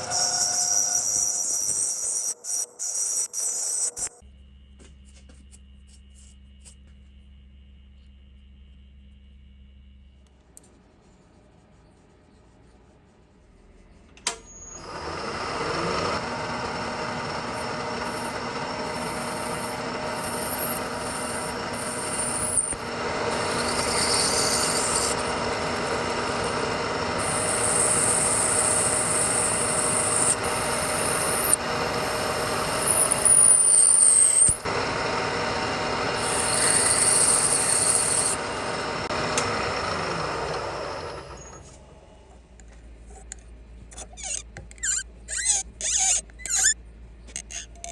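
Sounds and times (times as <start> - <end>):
machine tool motor running: 14.8 - 41.8
metal cutting scrape: 17.1 - 34.8, 35.8 - 39.5.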